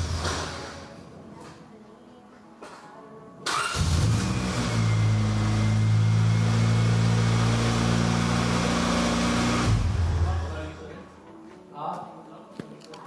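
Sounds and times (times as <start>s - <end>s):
car engine starting and idling: 0.0s - 0.9s, 3.5s - 10.8s.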